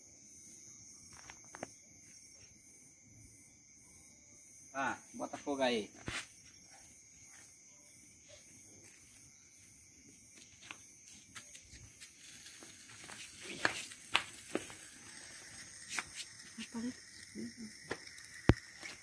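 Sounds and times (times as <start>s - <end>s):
crickets chirping: 0.0s - 19.0s
sharp crackles and pops: 1.0s - 1.8s, 10.3s - 19.0s.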